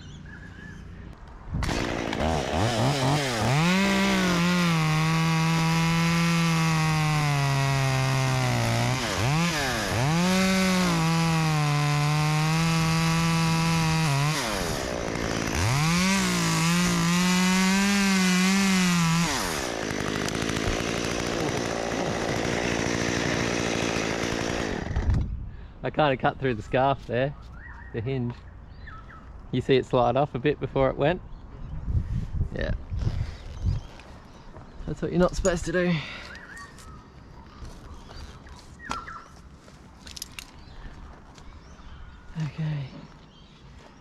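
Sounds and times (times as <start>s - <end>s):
chainsaw cutting into tree trunk: 1.6s - 25.4s.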